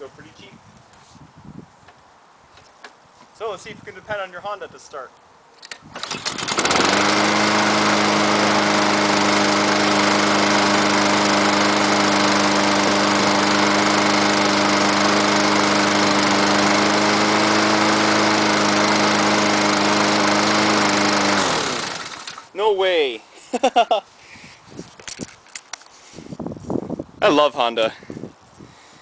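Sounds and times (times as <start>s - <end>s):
lawn mower engine running: 5.9s - 22.6s.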